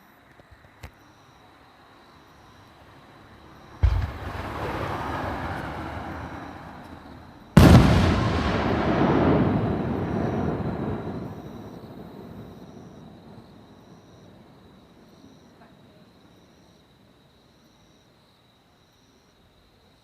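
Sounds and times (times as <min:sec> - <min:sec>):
firework shells bursting: 0:03.8 - 0:12.8.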